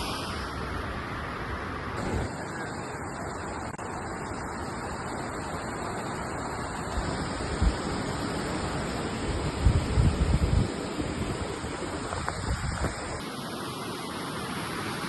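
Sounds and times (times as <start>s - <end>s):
wind on microphone: 6.8s - 13.2s.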